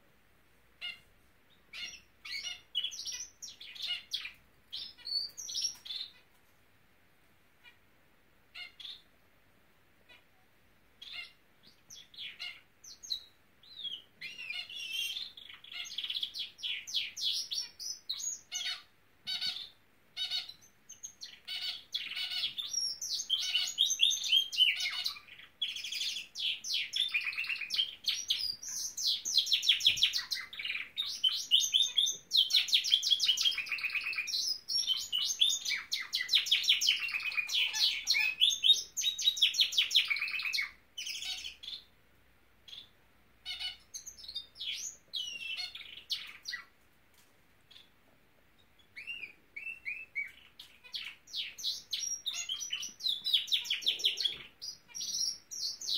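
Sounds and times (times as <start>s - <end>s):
canary singing trills: 0.8s - 6.5s, 7.6s - 9.2s, 10.0s - 42.0s, 42.6s - 46.8s, 47.6s - 55.9s.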